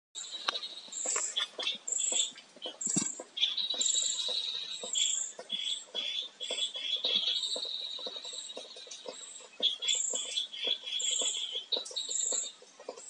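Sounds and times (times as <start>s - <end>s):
birds chirping: 0.2s - 13.0s.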